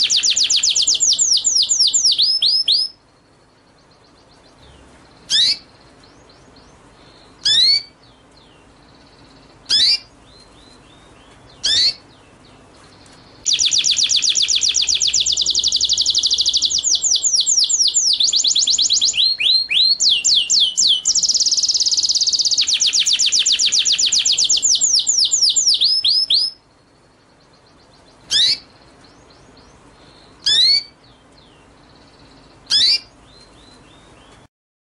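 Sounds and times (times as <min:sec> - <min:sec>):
songbird short downward calls: 0:00.0 - 0:03.0, 0:04.6 - 0:05.7, 0:07.0 - 0:08.0, 0:09.6 - 0:10.8, 0:11.6 - 0:12.0, 0:13.4 - 0:26.6, 0:28.2 - 0:28.8, 0:30.0 - 0:34.1
songbird fast trill: 0:00.0 - 0:12.3, 0:13.3 - 0:34.3.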